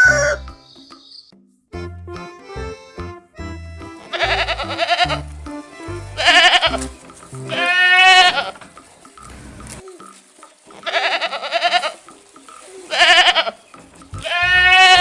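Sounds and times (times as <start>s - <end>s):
background music with bass: 0.0s - 9.9s, 13.8s - 15.0s
goat or sheep bleating: 3.9s - 5.4s, 6.0s - 8.6s, 10.7s - 13.6s, 14.2s - 15.0s.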